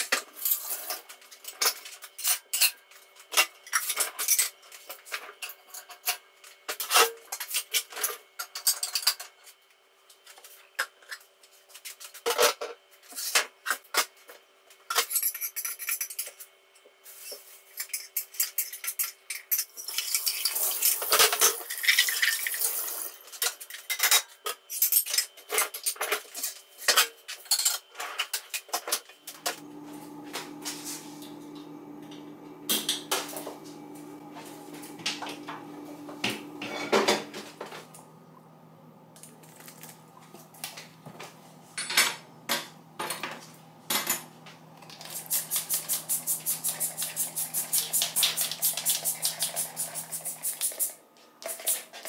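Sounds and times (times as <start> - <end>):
steady low hum: 29.2 - 51.3.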